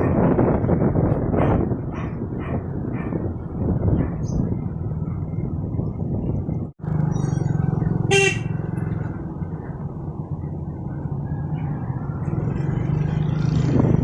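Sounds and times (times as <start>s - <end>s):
motorcycle engine running: 6.8s - 11.2s
vehicle horn toot: 8.1s - 8.6s.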